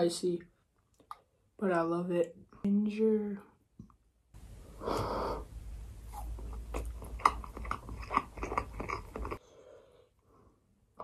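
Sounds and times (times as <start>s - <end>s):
wet chewing mouth sounds: 6.1s - 9.4s.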